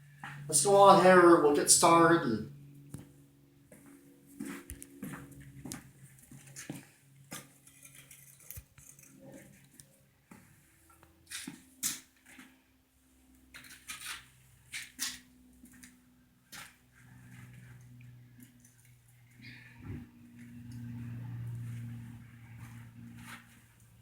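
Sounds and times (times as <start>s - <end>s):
faint low hum: 12.4s - 24.0s.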